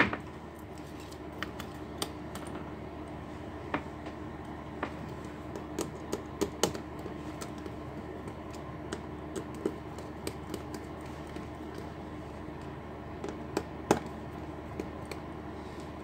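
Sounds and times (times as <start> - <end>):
faint hum: 0.0 - 16.0
tools clicking and tapping on laptop: 4.8 - 16.0.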